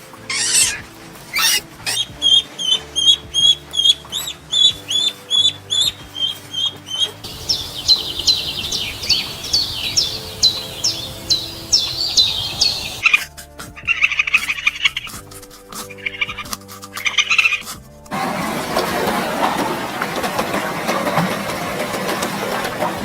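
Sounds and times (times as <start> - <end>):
birds chirping: 0.0 - 13.2
soft background music: 0.0 - 23.0.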